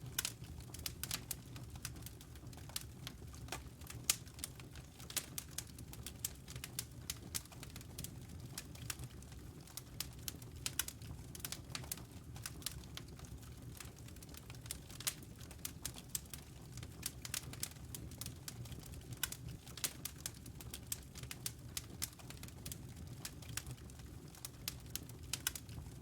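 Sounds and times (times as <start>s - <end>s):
low rumble of flames: 0.0s - 26.0s
wood fire crackling: 0.0s - 26.0s.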